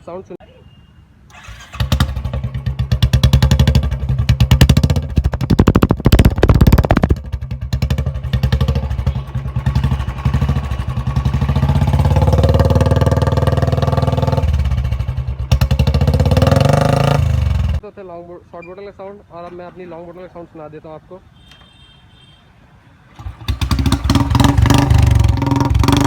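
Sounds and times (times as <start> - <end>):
motorcycle engine revving: 1.3 - 17.8, 23.1 - 26.0.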